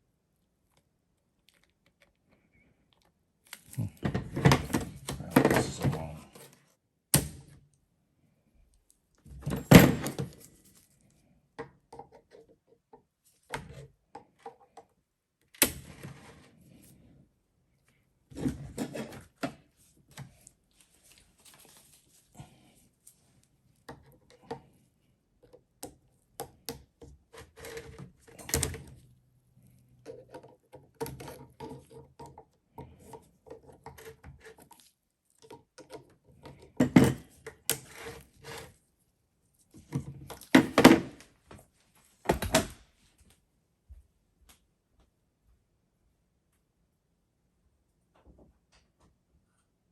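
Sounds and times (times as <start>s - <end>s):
tools and metal parts clattering: 9.3s - 10.7s.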